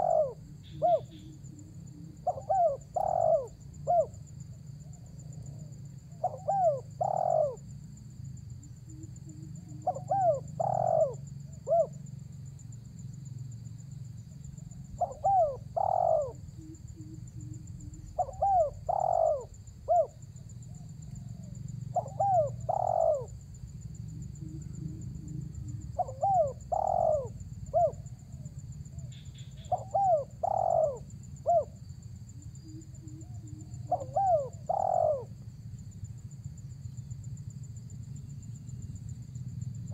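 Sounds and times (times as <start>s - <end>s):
dove cooing: 0.0s - 4.2s, 4.9s - 7.6s, 8.9s - 12.0s, 14.6s - 23.5s, 24.2s - 31.8s, 32.6s - 35.4s.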